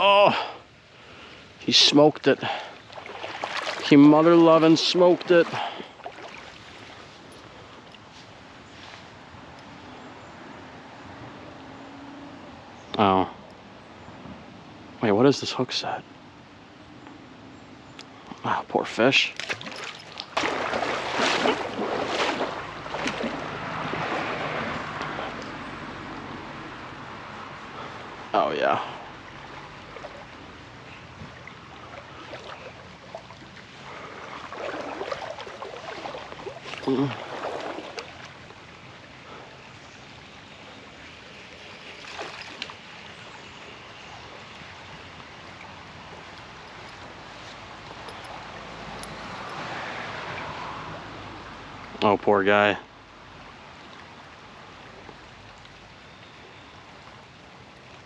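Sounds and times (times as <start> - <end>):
river water rushing: 0.0 - 12.7, 19.0 - 52.0
water splashing: 2.4 - 8.1, 19.2 - 26.1, 26.8 - 39.4, 40.9 - 50.8.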